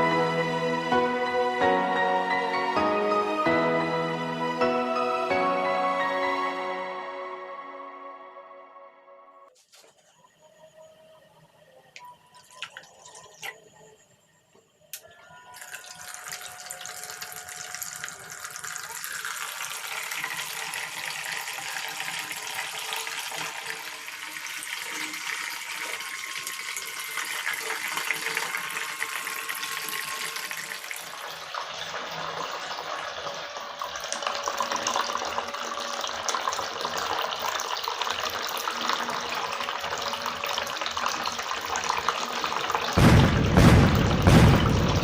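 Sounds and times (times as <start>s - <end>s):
water trickling in a fountain: 12.0s - 14.1s, 15.0s - 43.0s.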